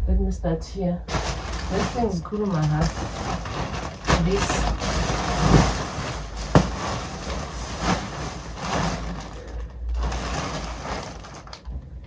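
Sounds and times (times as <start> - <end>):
packaging rustling and crinkling: 1.1 - 11.7
sharp knock: 6.6 - 6.9.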